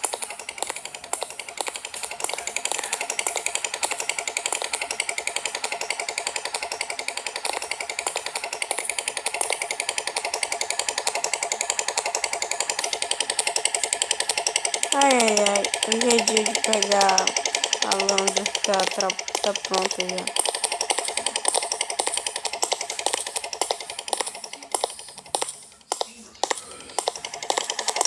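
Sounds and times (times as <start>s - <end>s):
motorcycle engine clattering: 0.0s - 28.0s.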